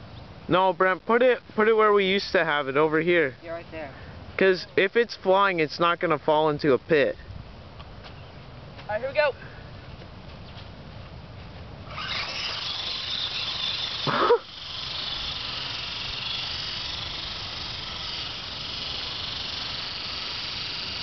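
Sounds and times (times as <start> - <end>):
toy helicopter motor whining: 11.8 - 21.0.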